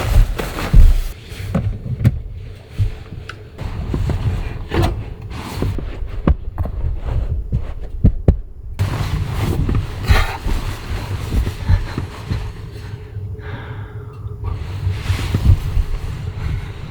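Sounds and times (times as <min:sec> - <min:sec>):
strong gusty wind buffeting: 0:03.6 - 0:16.9.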